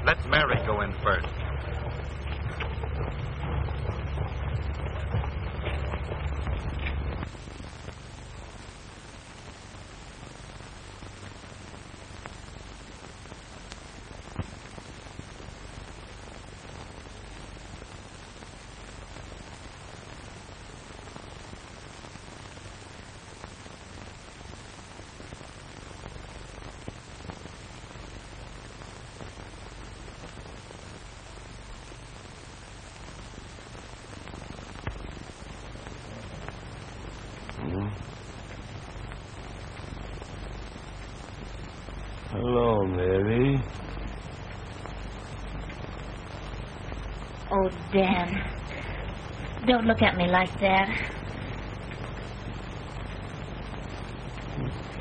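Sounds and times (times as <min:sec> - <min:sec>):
film soundtrack hiss and hum: 0:00.0 - 0:55.0
faint clicks: 0:13.1 - 0:16.0.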